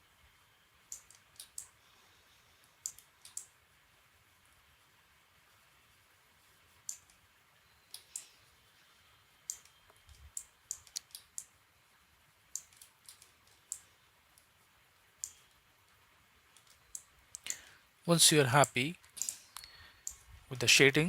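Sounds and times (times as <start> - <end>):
faint background hiss: 0.0 - 21.0
mouse and keyboard clicks: 0.9 - 1.7, 2.8 - 3.5, 9.5 - 11.5, 12.5 - 13.9, 19.1 - 20.2.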